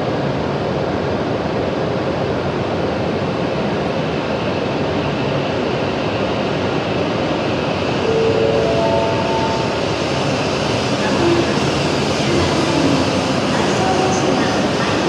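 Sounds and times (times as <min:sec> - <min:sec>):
train rushing in platform hall: 0:00.0 - 0:15.0.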